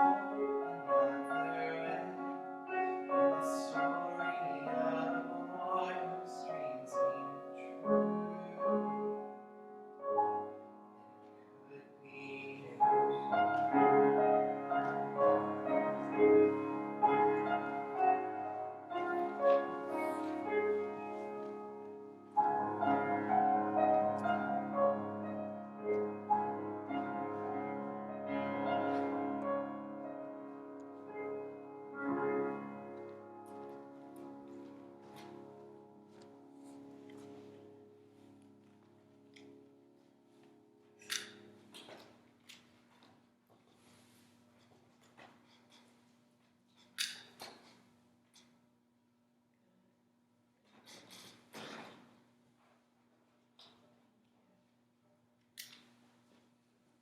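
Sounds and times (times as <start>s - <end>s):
slow piano music: 0.0s - 42.8s.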